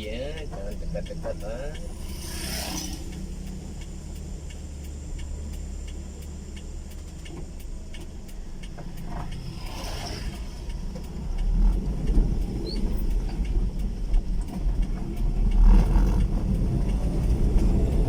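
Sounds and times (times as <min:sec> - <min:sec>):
vehicle engines droning uphill: 0:00.0 - 0:18.0.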